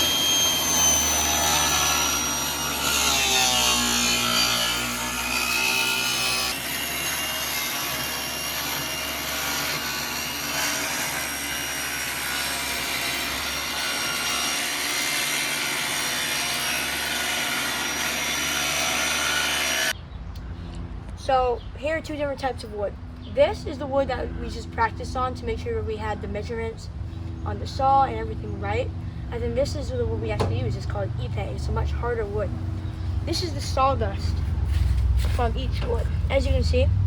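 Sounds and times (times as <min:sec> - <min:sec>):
saw blade cutting wood: 0:00.0 - 0:19.9
table saw whining: 0:00.0 - 0:20.0.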